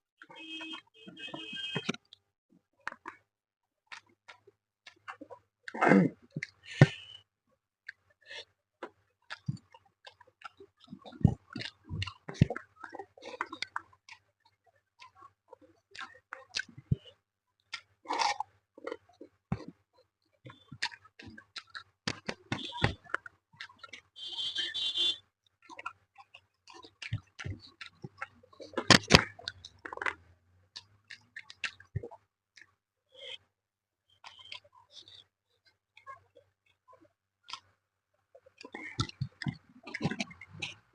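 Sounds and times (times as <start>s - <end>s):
person chewing food: 3.9s - 7.2s, 7.8s - 24.2s, 25.6s - 33.5s, 34.1s - 40.9s.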